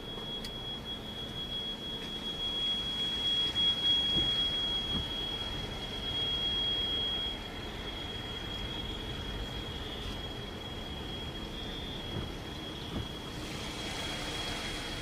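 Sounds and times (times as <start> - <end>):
faint low thuds: 4.1 - 5.2, 12.1 - 13.3.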